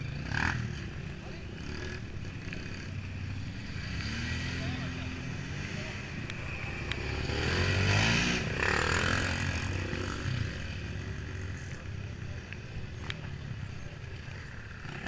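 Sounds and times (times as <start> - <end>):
off-road vehicle engine revving: 0.0 - 12.4.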